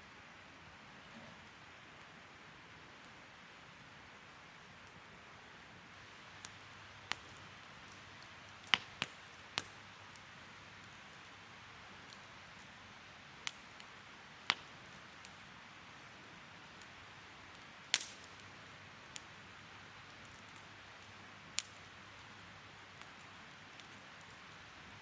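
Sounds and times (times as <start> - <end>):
campfire hissing: 0.2 - 25.0
fire popping and snapping: 6.0 - 11.4, 12.0 - 12.8, 13.4 - 25.0.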